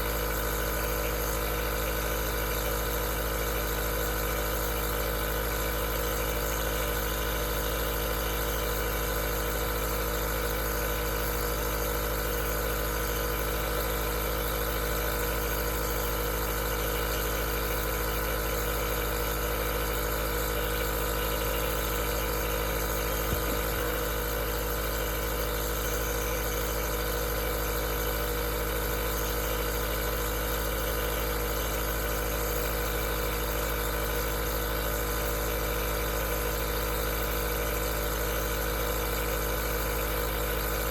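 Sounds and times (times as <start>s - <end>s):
nebulizer compressor humming: 0.0s - 40.9s.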